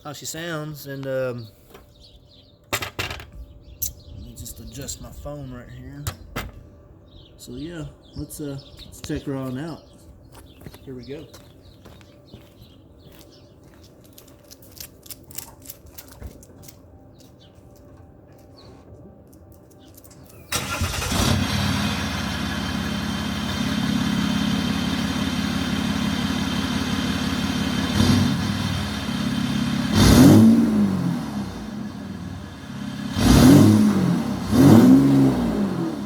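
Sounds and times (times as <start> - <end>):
diesel engine cranking and starting: 20.3 - 36.0
diesel engine idling and revving: 20.5 - 36.0.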